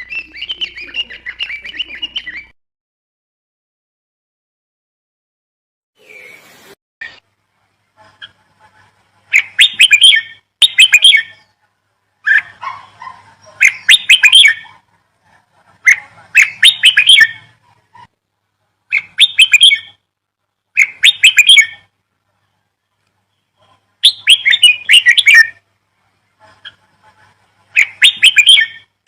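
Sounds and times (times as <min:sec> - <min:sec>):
small bird chirping: 0:00.0 - 0:02.5, 0:09.3 - 0:11.6, 0:12.2 - 0:18.1, 0:18.9 - 0:20.1, 0:23.0 - 0:25.6, 0:26.5 - 0:29.0.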